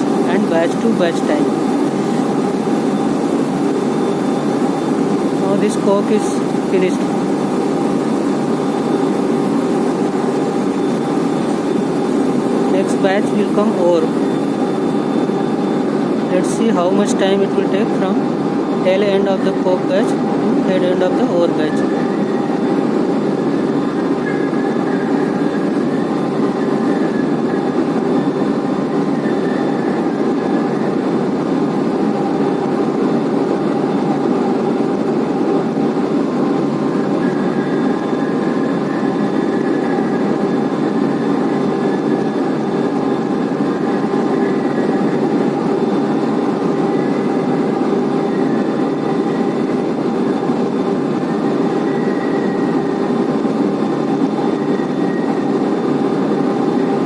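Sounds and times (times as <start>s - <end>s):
conveyor machine noise: 0.0s - 57.0s
faint high squeal: 24.2s - 26.2s.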